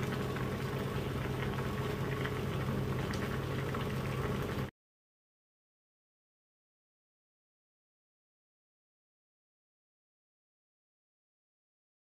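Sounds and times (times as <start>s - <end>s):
water bubbling in pot: 0.0s - 4.7s.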